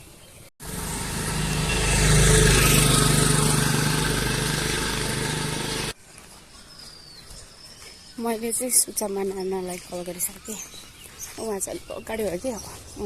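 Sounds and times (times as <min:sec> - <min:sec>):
vehicle engine passing: 0:00.6 - 0:06.0.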